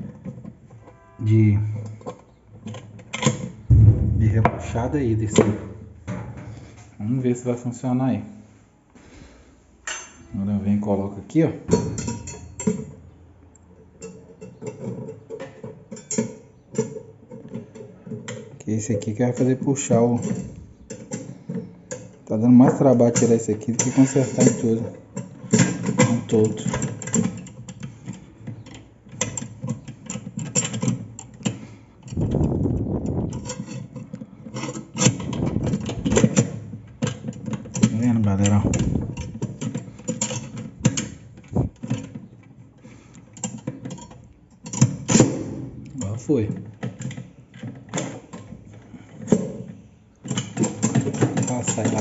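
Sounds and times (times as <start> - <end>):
metal clicks and knocks: 1.8 - 6.9, 11.7 - 18.6, 19.2 - 52.0
metallic clicks and knocks: 11.7 - 18.5, 33.3 - 42.5.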